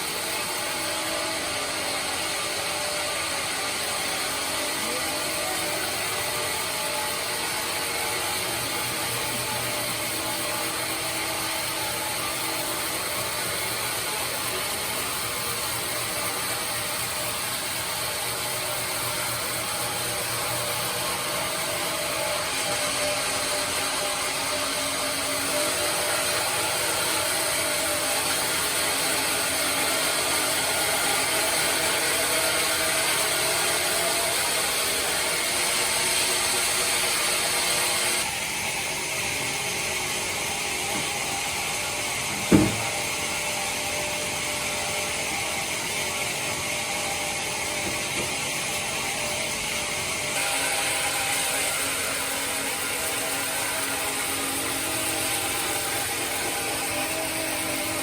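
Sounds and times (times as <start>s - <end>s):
band saw cutting wood: 0.0s - 58.0s.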